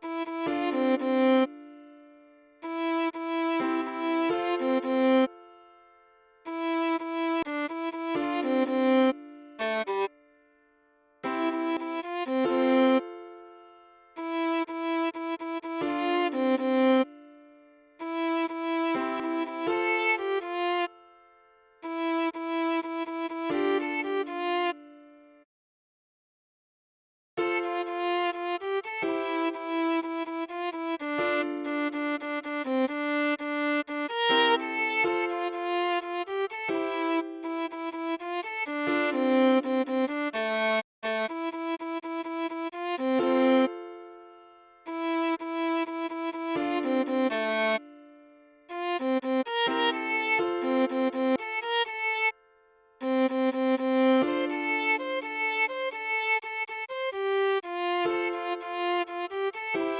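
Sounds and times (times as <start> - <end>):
solo viola melody: 0.0 - 10.6, 11.2 - 25.4, 27.4 - 59.9.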